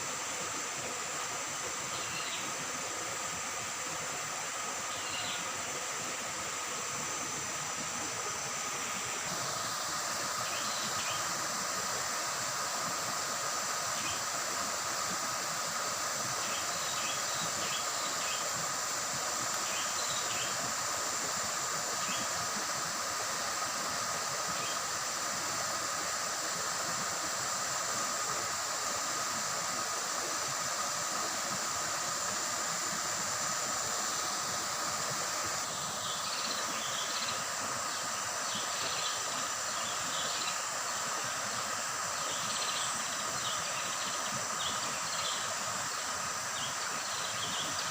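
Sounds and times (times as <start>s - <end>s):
high insect drone: 0.0s - 47.9s.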